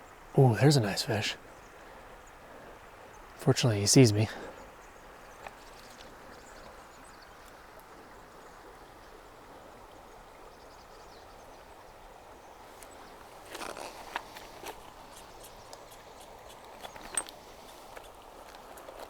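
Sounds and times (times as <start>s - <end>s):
stream water flowing: 0.0s - 19.0s
sharp clicks and rustling: 13.6s - 19.0s.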